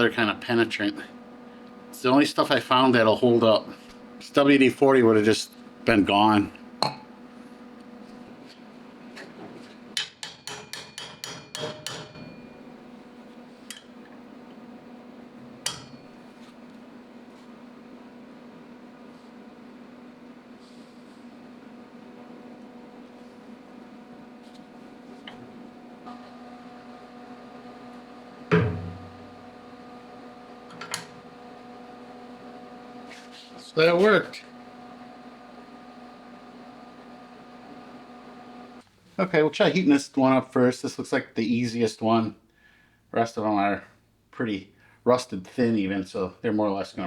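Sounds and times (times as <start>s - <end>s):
low steady shop hum: 0.0s - 47.0s
hammer tapping on steel: 10.0s - 12.2s.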